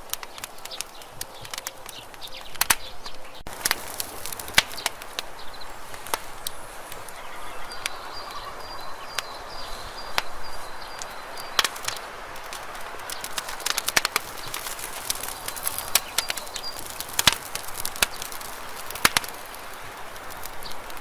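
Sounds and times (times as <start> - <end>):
campfire crackling and popping: 0.0 - 21.0
faint high whistle: 6.3 - 10.4.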